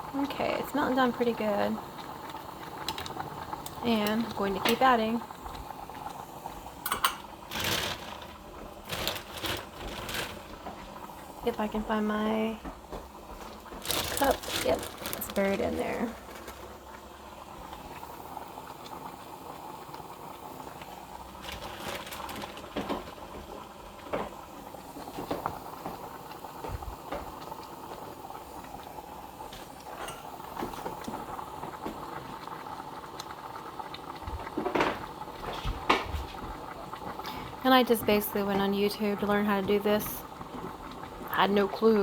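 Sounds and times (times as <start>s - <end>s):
pot bubbling: 0.0s - 42.0s
utensils clinking against pot: 6.8s - 8.3s, 29.9s - 30.4s.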